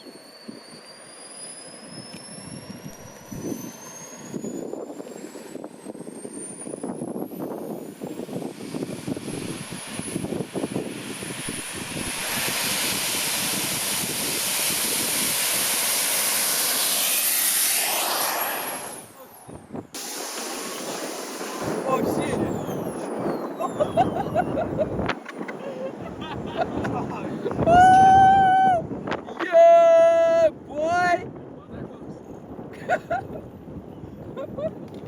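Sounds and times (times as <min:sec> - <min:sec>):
turbojet roar: 0:00.0 - 0:23.3
turbojet whine spooling up: 0:00.0 - 0:29.3.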